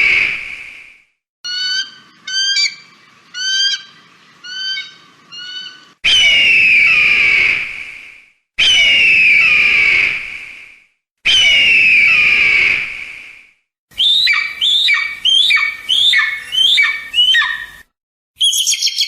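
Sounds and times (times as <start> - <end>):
sharp high bird calls: 1.5 - 7.6, 14.0 - 19.0
bird of prey screaming: 1.5 - 7.7, 8.6 - 10.1, 11.3 - 12.9, 14.0 - 17.8.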